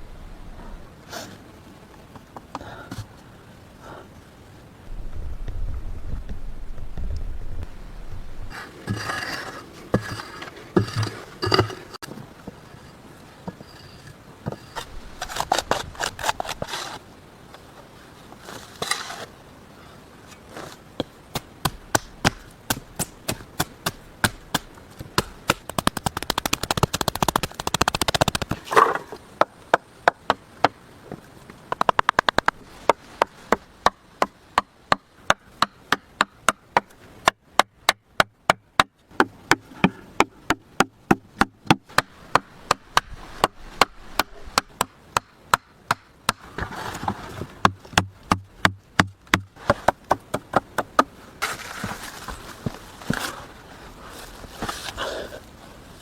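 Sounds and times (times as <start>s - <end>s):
scraping and rustling: 8.4s - 19.4s, 46.5s - 47.6s, 51.4s - 56.0s
axe chopping wood: 21.0s - 30.8s, 31.7s - 46.7s, 47.6s - 51.9s.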